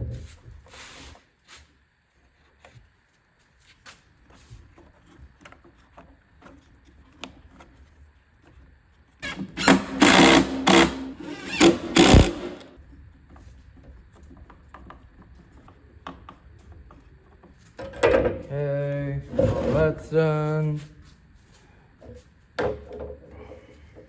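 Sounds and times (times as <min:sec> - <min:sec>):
power tool motor bursts: 0:09.3 - 0:12.7.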